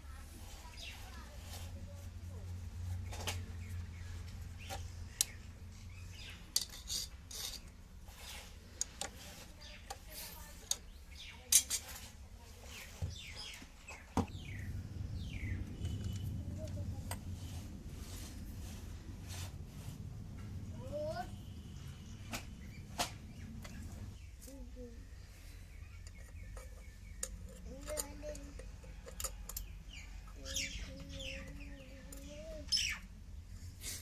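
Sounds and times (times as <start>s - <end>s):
low steady hum: 14.2s - 34.0s.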